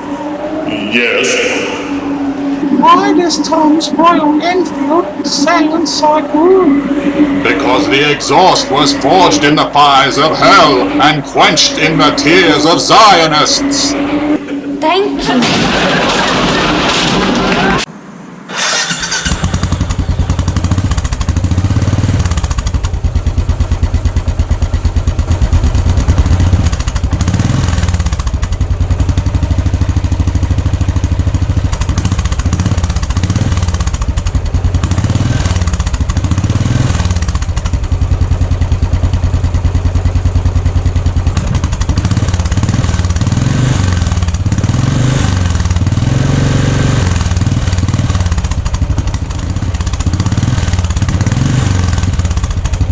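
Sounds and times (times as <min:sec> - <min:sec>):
motorcycle engine idling: 0:19.1 - 0:52.9.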